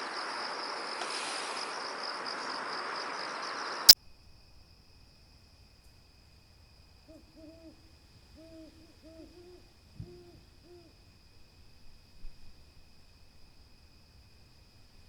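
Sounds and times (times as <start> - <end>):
owl hooting: 7.1 - 11.0.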